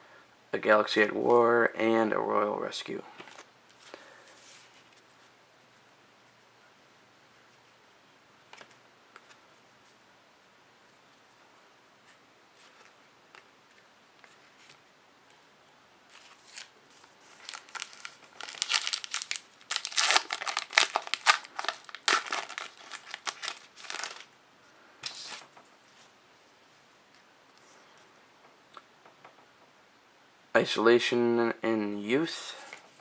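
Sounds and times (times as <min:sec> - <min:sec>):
foil wrapper tearing and crinkling: 0:17.3 - 0:24.3.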